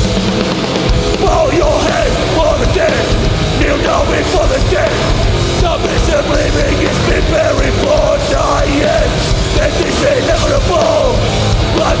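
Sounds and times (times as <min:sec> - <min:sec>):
punk band playing loud: 0:00.0 - 0:12.0.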